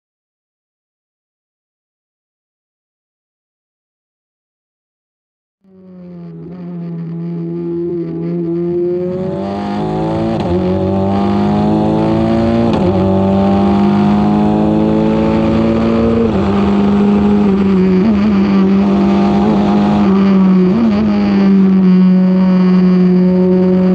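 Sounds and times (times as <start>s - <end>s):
race car engine accelerating: 5.7s - 23.9s.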